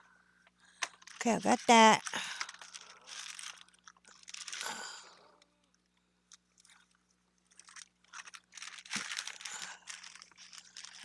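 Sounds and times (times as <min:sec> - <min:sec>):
craft supplies rustling and crinkling: 0:00.8 - 0:04.9, 0:06.3 - 0:11.0.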